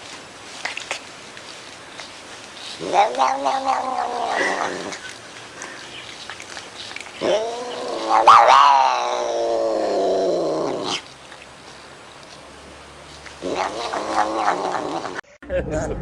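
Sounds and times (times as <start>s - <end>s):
cat yowling: 2.8s - 4.9s, 7.2s - 10.9s, 13.4s - 15.2s.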